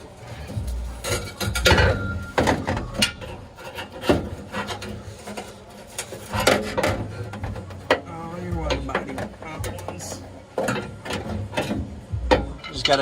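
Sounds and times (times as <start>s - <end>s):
metal scraping and knocking: 0.0s - 13.0s
short squeak: 1.7s - 3.2s.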